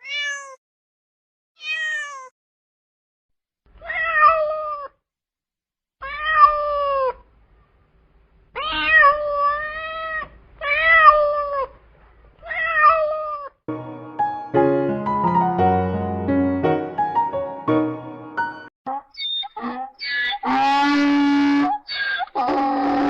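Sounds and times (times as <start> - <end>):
cat meowing: 0.0 - 0.6, 1.6 - 2.3, 3.8 - 5.0, 6.0 - 7.3, 8.6 - 11.8, 12.4 - 13.6, 19.2 - 23.0.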